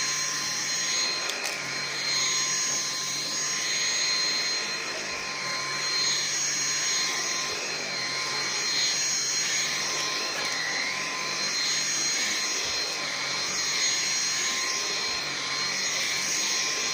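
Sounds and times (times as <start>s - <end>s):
vacuum cleaner running: 0.0s - 16.9s.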